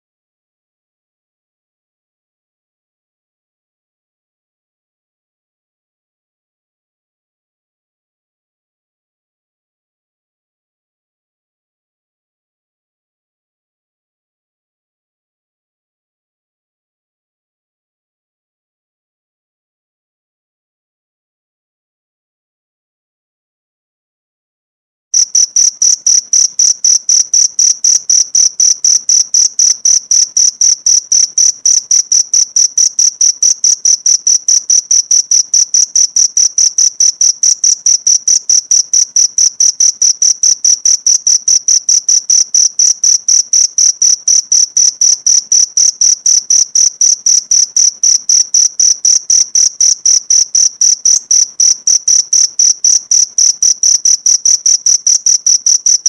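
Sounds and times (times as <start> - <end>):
cricket chirping: 25.2 - 56.0.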